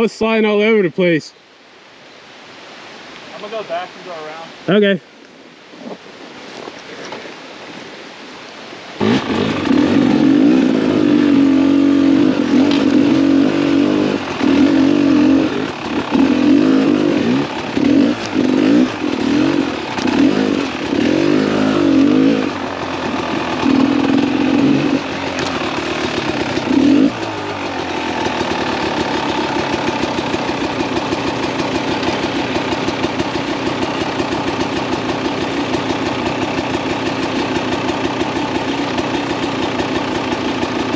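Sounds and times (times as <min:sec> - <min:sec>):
motorcycle engine revving and idling: 0:09.0 - 0:40.9.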